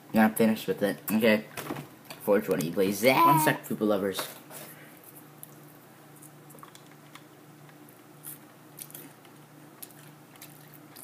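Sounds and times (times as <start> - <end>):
chewing mouth clicks: 6.2 - 7.3.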